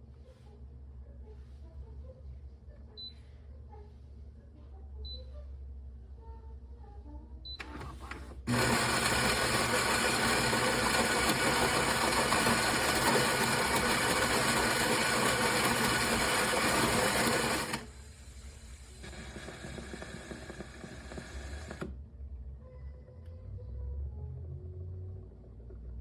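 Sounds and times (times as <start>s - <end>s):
espresso machine running: 7.6s - 21.9s.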